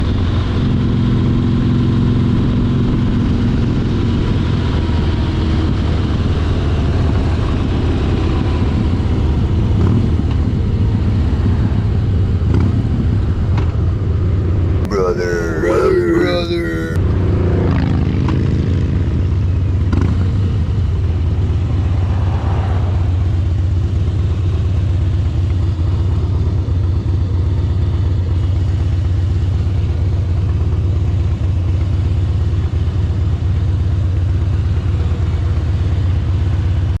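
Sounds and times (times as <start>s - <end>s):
motorcycle engine running: 0.0s - 15.6s, 16.9s - 22.1s, 23.1s - 37.0s.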